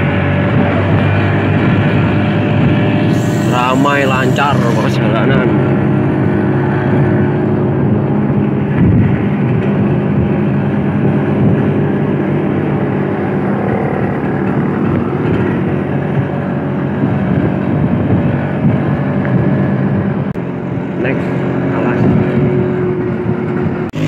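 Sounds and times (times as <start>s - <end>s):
scooter engine running: 0.0s - 6.0s, 23.6s - 24.0s
road noise: 0.0s - 24.0s
wind: 0.0s - 24.0s.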